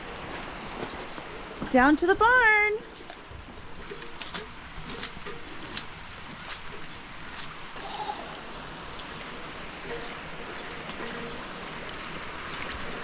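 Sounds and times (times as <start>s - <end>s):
sharp drips and taps: 0.0s - 13.0s
steady rain falling: 0.0s - 13.0s
hiss of runoff water: 4.4s - 13.0s.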